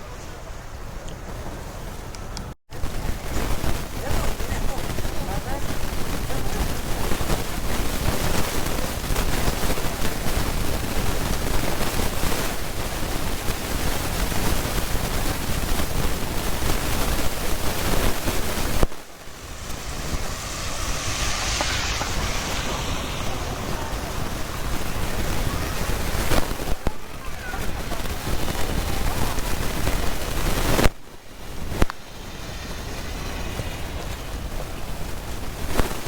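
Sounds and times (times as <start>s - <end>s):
wind buffeting microphone: 0.0s - 36.0s
rain falling: 22.5s - 35.8s.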